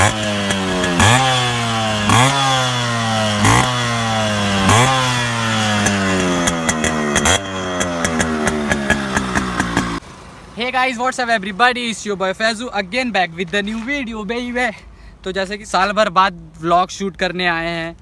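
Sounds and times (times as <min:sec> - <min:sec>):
motorcycle engine idling and revving: 0:00.0 - 0:14.3
exhaust crackles: 0:00.0 - 0:18.0.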